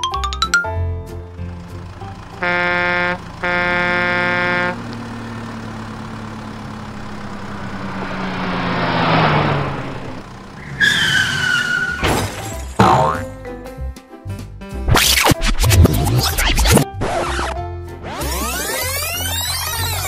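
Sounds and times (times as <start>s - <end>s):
cartoon horn honking: 2.3s - 4.8s
engine-like rushing noise: 5.4s - 11.6s.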